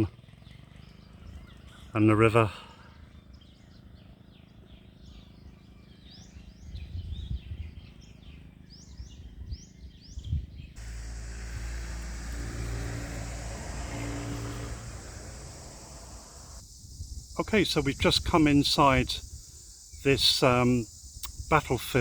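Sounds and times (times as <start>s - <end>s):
birds chirping: 10.7s - 17.3s
motor vehicle humming: 10.8s - 16.6s.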